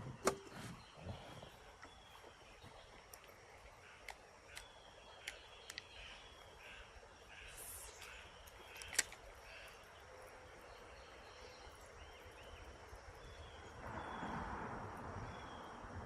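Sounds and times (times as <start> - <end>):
high insect drone: 0.8 - 16.0
short bird calls: 3.8 - 10.2
sharp click: 7.8 - 9.2.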